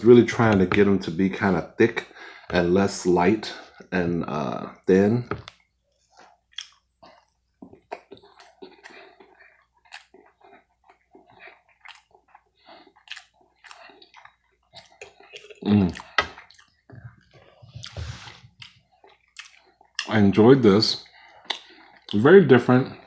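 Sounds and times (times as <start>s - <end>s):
person chewing food: 5.3s - 20.3s, 21.0s - 22.2s
mouth smacks: 21.4s - 22.2s.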